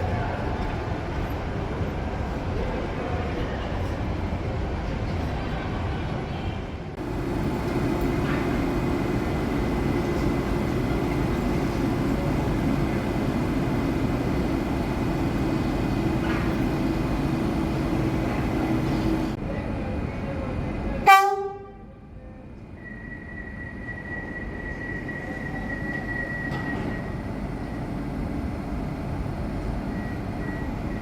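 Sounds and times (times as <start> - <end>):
train rumbling: 0.0 - 31.0
train horn blast: 21.0 - 22.0.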